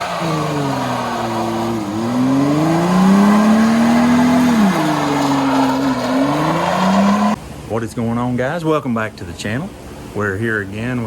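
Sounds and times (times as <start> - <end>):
pickup engine revving hard: 0.0 - 7.4.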